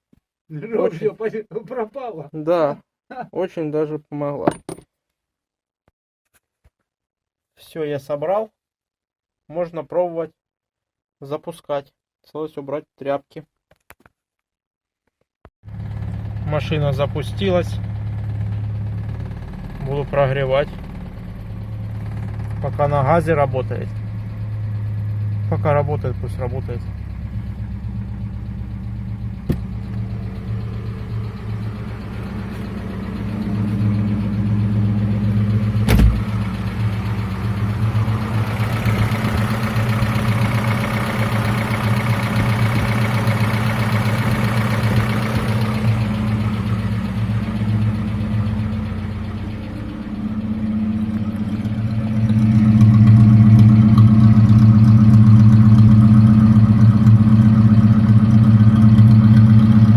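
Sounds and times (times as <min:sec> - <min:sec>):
car engine idling: 0:15.7 - 0:59.9.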